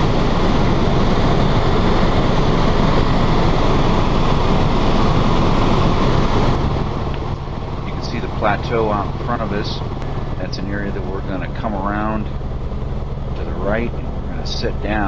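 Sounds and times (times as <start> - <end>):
helicopter rotor and engine rush: 0.0 - 15.0
low hum: 0.0 - 15.0.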